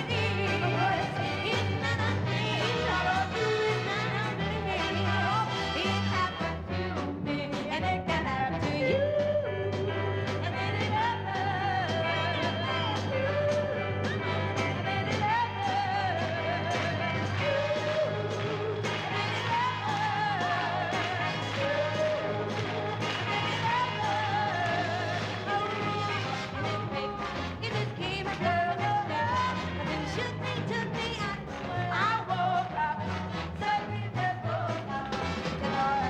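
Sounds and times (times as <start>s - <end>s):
woman singing: 0.0s - 22.5s, 23.2s - 36.0s
orchestra playing: 14.1s - 27.9s.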